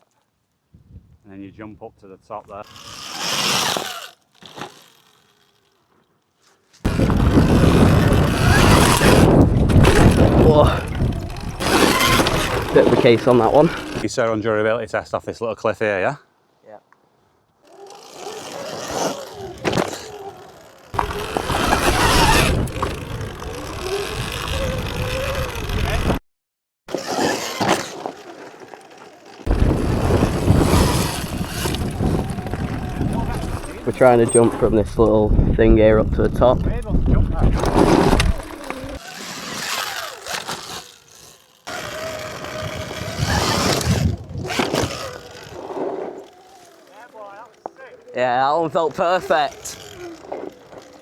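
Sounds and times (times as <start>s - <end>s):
electric motorbike motor whine: 6.8s - 14.1s, 17.6s - 26.2s, 26.9s - 35.2s, 36.5s - 51.0s
wind rush on microphone: 6.9s - 14.0s, 21.0s - 26.2s, 29.5s - 39.0s, 42.5s - 45.5s.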